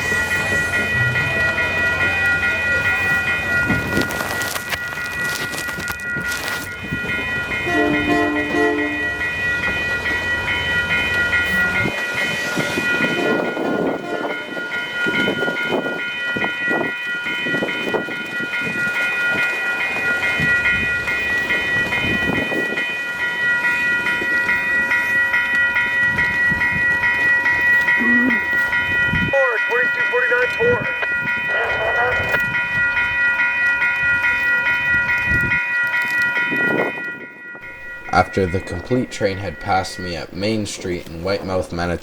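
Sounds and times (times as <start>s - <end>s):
crossing bell ringing: 0.0s - 42.0s
train horn blast: 7.6s - 9.2s, 13.0s - 14.6s.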